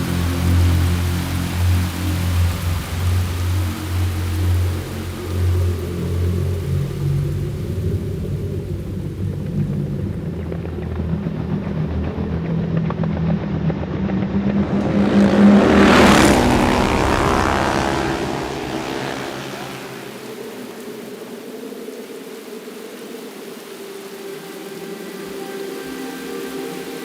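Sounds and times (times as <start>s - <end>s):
vehicle engine running: 0.0s - 20.5s
vehicle passing close by: 12.4s - 20.8s.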